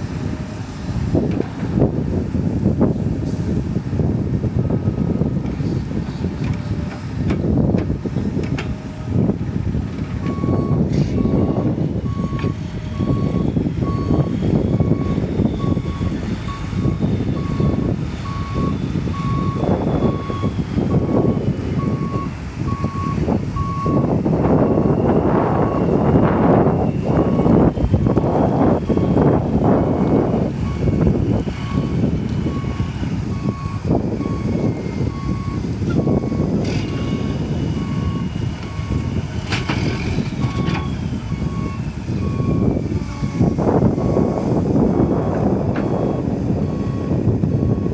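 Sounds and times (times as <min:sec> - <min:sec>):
diesel engine rumble: 0:00.0 - 0:47.9
reversing alarm beeping: 0:10.2 - 0:47.9.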